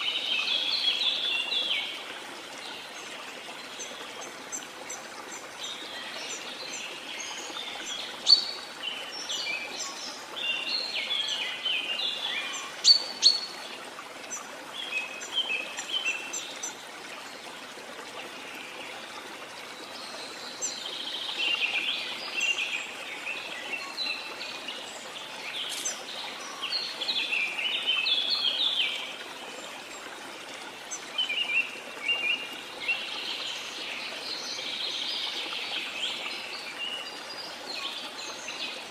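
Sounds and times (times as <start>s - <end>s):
birds chirping: 20.2s - 29.2s.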